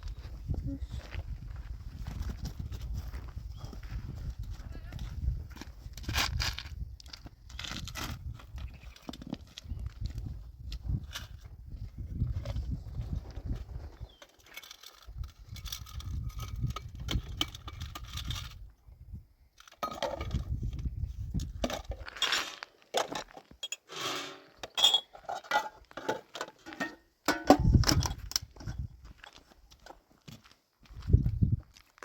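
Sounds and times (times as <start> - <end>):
small hard objects clinking: 14.1 - 18.6, 21.4 - 28.4.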